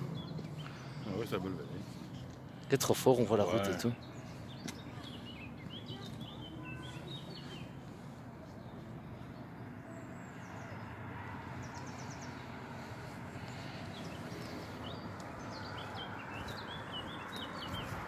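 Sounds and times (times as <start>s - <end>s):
songbirds chirping: 0.0s - 18.0s
low outdoor rumble: 5.7s - 18.0s.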